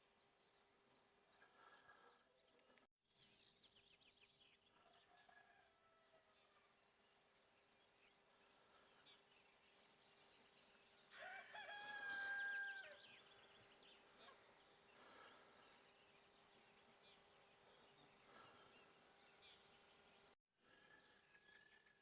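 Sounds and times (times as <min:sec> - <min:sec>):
rooster crowing: 0:04.8 - 0:06.6, 0:11.1 - 0:13.2.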